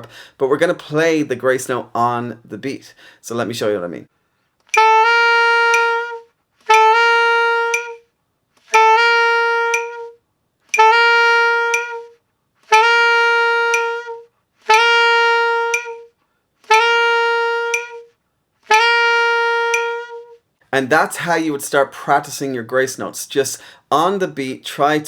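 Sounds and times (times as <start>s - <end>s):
saxophone grace notes: 4.8s - 8.0s, 8.7s - 10.2s, 10.8s - 18.1s, 18.7s - 20.4s.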